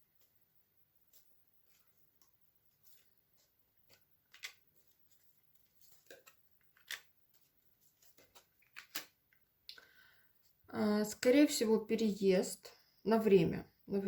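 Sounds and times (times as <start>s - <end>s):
cards clicking and rustling: 1.0s - 9.2s.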